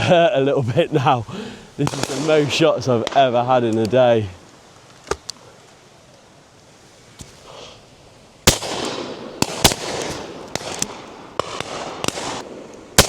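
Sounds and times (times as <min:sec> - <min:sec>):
shotgun shots with echo: 0:01.8 - 0:03.3, 0:08.5 - 0:13.0.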